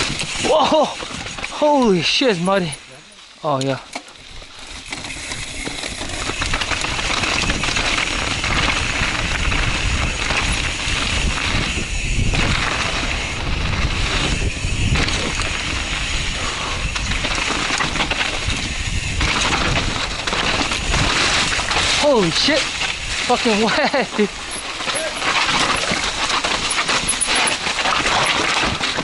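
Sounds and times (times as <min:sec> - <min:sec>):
bike rattle: 0:00.0 - 0:29.0
tyre noise: 0:04.1 - 0:29.0
wind buffeting microphone: 0:04.2 - 0:27.2.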